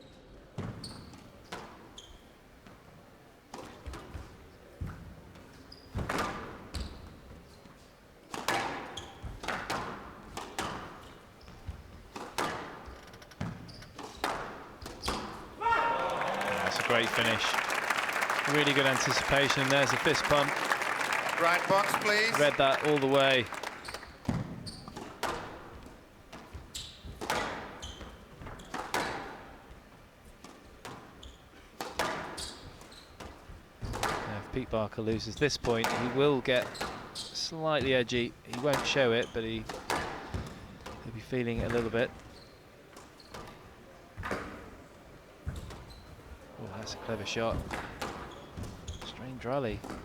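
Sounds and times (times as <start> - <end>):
shoe squeaks on court floor: 0.1 - 2.4, 5.5 - 7.9, 8.6 - 9.8, 10.6 - 15.5, 18.4 - 25.4, 26.6 - 29.2, 30.9 - 31.6, 32.3 - 33.9, 36.6 - 37.4, 41.8 - 44.5, 45.5 - 46.3, 47.4 - 49.4
squash ball knocks: 8.3 - 12.8, 28.4 - 29.4, 33.2 - 34.3.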